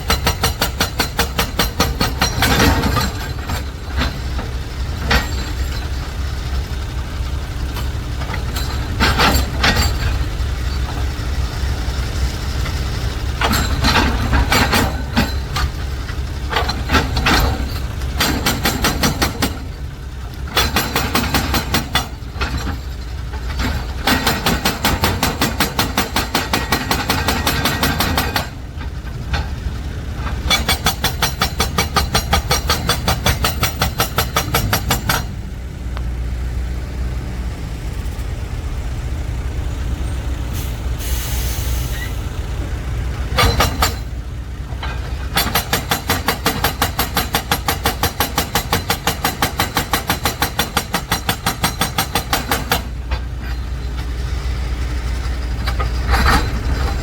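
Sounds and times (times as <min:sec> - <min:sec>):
diesel truck engine rumble: 0:00.0 - 0:57.0
air brake hiss: 0:40.4 - 0:42.3.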